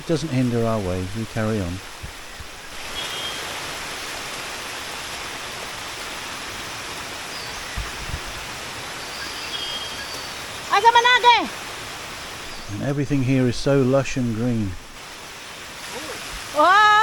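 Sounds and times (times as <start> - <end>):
stream water rushing over rocks: 0.0 - 17.0
soft low bumps: 7.7 - 8.5.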